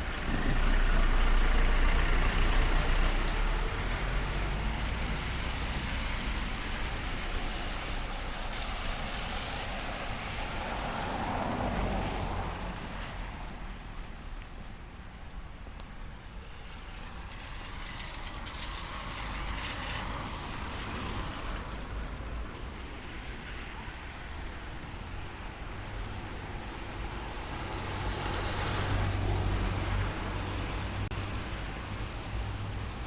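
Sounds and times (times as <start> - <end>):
wet tyres hissing: 0.0 - 12.7.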